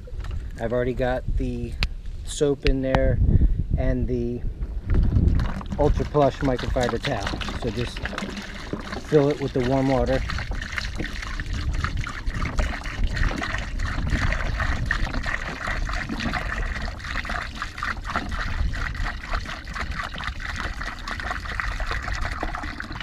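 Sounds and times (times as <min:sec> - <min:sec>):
water pouring into a bucket: 0:04.8 - 0:23.0.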